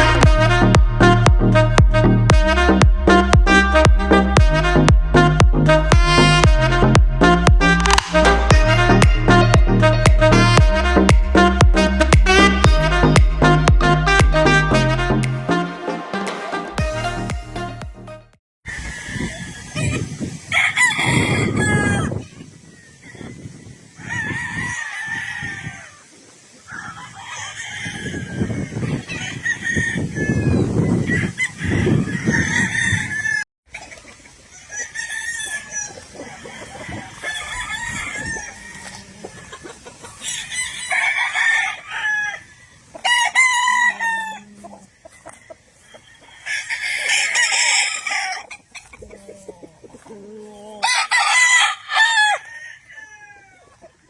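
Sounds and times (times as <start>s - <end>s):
roosters crowing: 18.7s - 53.9s
chickens clucking: 25.4s - 51.4s, 52.3s - 54.0s.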